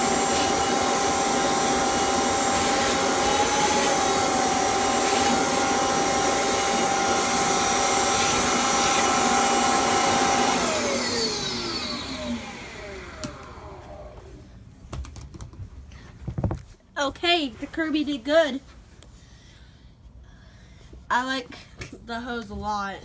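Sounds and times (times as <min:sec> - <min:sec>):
vacuum cleaner motor whining: 0:00.0 - 0:14.4.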